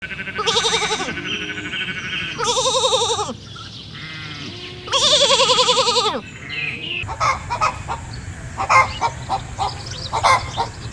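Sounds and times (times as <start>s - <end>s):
sheep bleating: 0.0s - 3.4s, 4.0s - 6.2s.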